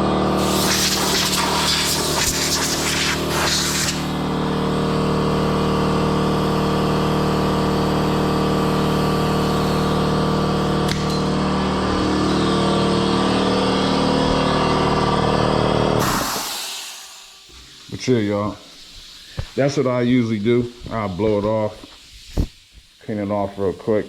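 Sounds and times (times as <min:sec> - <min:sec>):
motor humming: 0:00.0 - 0:16.1.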